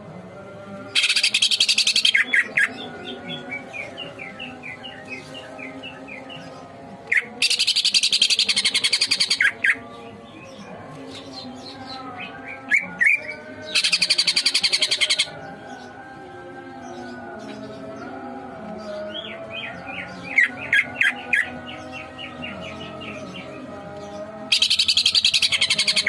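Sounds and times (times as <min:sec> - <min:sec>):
harsh rattling bird trill: 0:00.9 - 0:03.4, 0:07.1 - 0:09.8, 0:11.2 - 0:15.4, 0:24.5 - 0:26.0.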